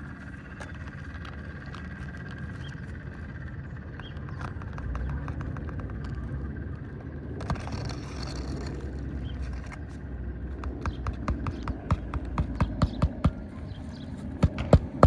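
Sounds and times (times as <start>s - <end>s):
low wind rumble: 0.0s - 15.0s
sharp hammer taps: 10.6s - 13.5s.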